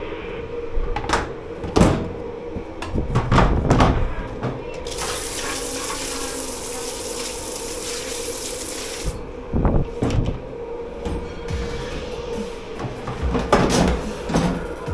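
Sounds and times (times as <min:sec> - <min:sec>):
machine hum: 0:00.0 - 0:14.9
water spraying into sink: 0:04.8 - 0:09.2
dishes clattering in sink: 0:12.8 - 0:14.9.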